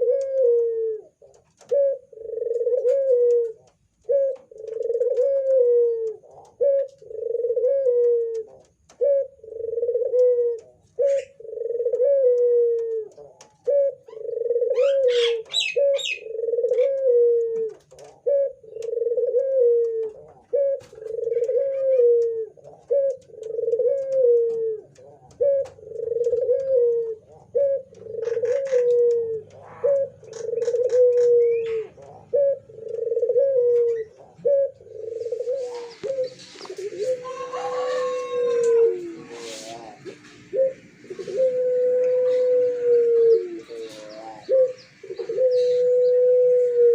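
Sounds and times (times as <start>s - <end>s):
dove cooing: 0.0s - 46.9s
faint high bird chirps: 35.2s - 38.6s, 41.4s - 46.4s.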